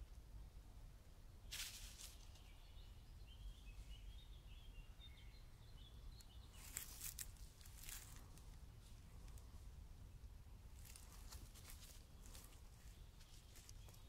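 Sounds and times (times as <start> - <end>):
faint bird chirping: 1.3 - 14.0
brief rustles: 1.5 - 2.5.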